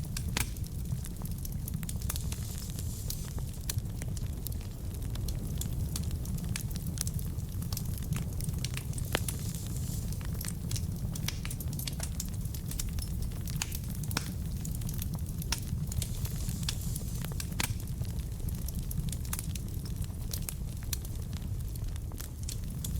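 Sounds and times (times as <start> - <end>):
burning logs crackling: 0.0 - 22.9
fire rumbling: 0.0 - 22.9.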